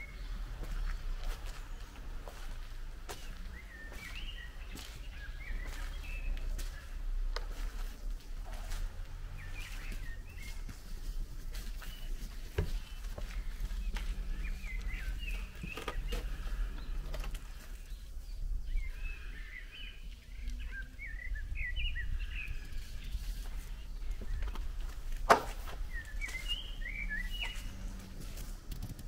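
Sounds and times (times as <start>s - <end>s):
songbird chirping: 0.0s - 29.0s
steady low rumble: 0.0s - 29.0s.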